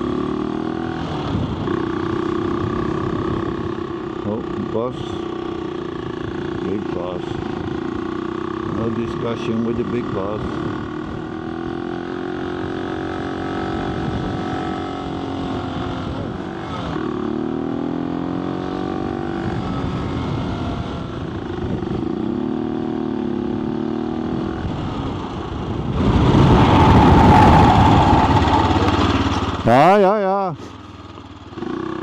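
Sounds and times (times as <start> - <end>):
motorcycle engine running: 0.0 - 32.0
rushing noise: 25.1 - 30.1.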